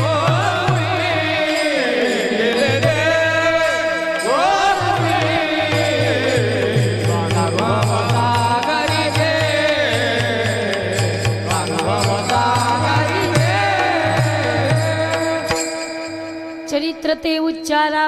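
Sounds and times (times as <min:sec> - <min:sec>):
drum beat: 0:04.5 - 0:15.9.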